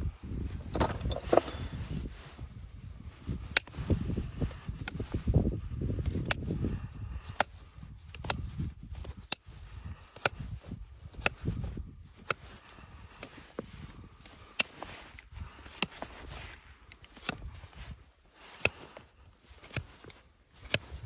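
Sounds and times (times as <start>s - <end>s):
sharp clicks of farrier's tools: 0.7s - 1.8s, 3.5s - 3.8s, 7.3s - 10.4s, 14.2s - 16.1s, 16.9s - 17.5s, 18.5s - 21.0s.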